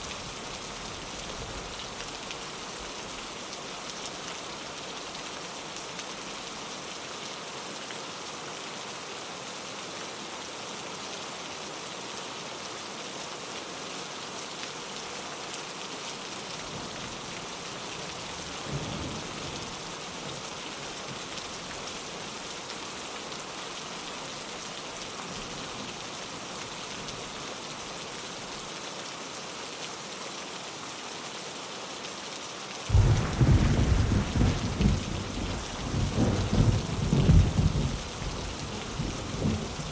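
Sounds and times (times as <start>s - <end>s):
rain on a window: 0.0s - 39.9s
loud peal of thunder: 32.9s - 39.8s
thunder rumbling: 32.9s - 39.9s.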